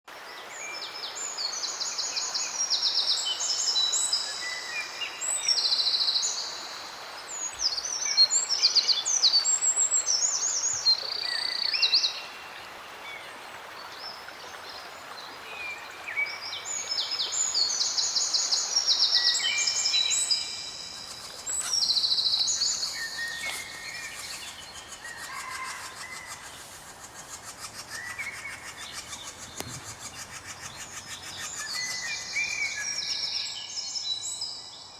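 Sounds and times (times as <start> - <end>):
steady background hiss: 15.1 - 34.9
songbirds singing: 16.7 - 34.9.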